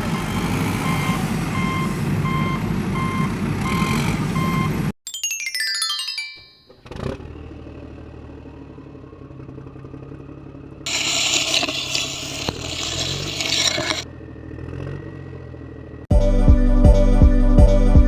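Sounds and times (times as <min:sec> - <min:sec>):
toy machine engine hum: 0:10.9 - 0:14.0
gritty scrape of soil: 0:10.9 - 0:14.1.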